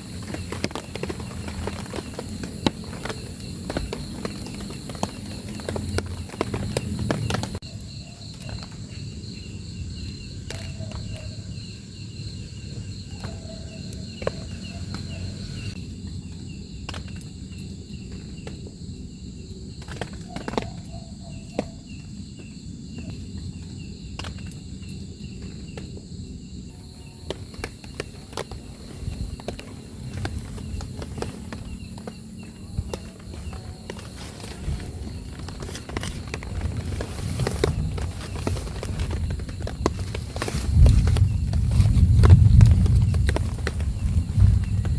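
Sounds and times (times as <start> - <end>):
insects chirping: 0.0 - 44.9.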